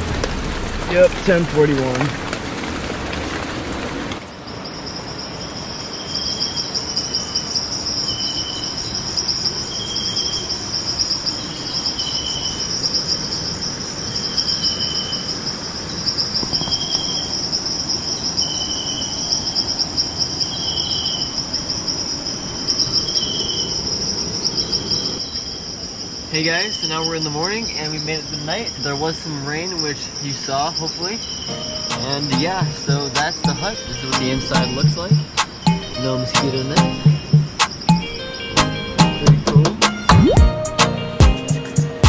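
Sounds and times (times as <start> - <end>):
high pulsing insect trill: 4.6 - 39.2
lower insect chirps: 29.7 - 38.3.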